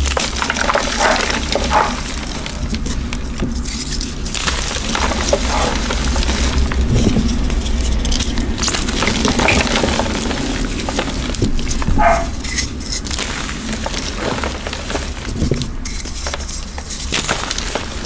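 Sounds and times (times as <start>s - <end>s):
chalk being crushed: 0.0s - 18.0s.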